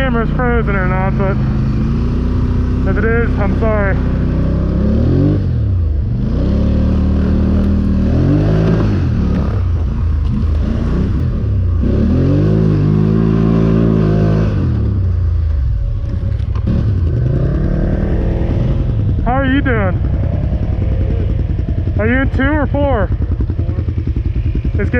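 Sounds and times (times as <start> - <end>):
four-wheeler engine revving: 0.0 - 24.9.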